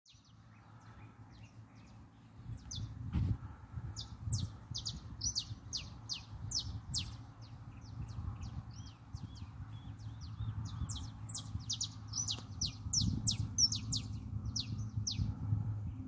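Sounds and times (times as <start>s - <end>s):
wild birds chirping: 0.1s - 16.0s
steady low rumble: 0.2s - 16.0s.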